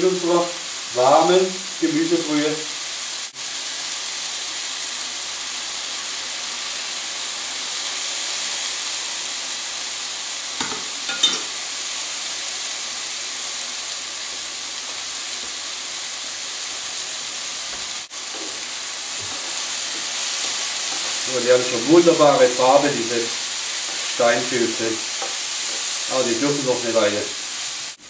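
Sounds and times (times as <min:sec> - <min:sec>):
rice and mushrooms sizzling: 0:00.0 - 0:28.0
spoon knocking against pot: 0:10.6 - 0:11.5
wooden spoon stirring in pot: 0:18.2 - 0:24.3, 0:25.0 - 0:26.1.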